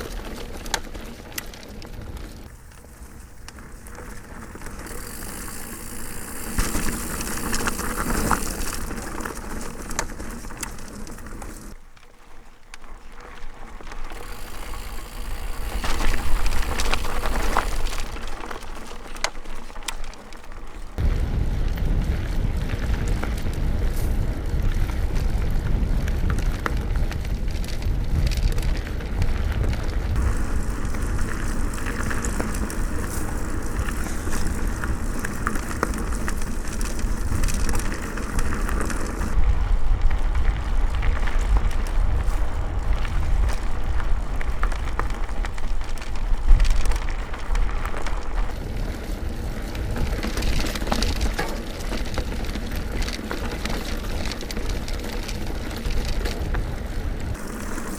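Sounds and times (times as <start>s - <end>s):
bike rattle: 0.0s - 21.0s, 21.8s - 57.9s
tyre and trail noise: 0.0s - 57.9s
wind rumble on microphone: 19.2s - 57.9s.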